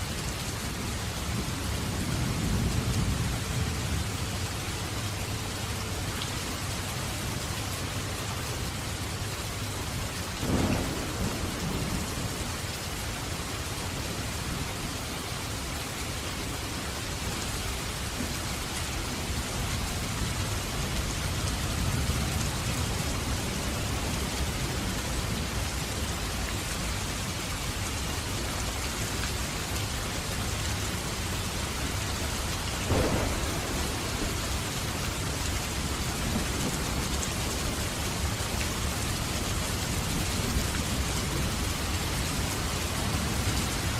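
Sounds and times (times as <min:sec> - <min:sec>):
steady rain: 0:00.0 - 0:43.9
thunderclap: 0:10.4 - 0:12.4, 0:32.8 - 0:37.4
low thunder rumbling: 0:10.4 - 0:12.8, 0:31.8 - 0:43.9.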